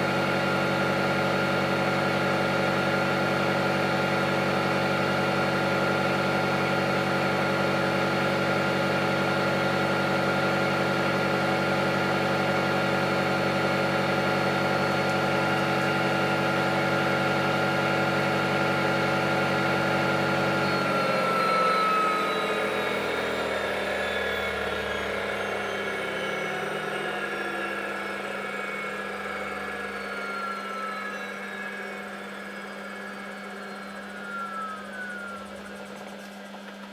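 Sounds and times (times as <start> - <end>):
washing machine spinning: 0.1 - 36.9.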